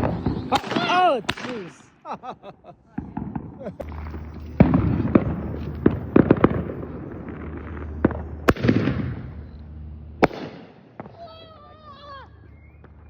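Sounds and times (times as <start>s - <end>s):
fireworks bangs and crackles: 0.0s - 13.0s
steady low hum: 3.7s - 11.1s.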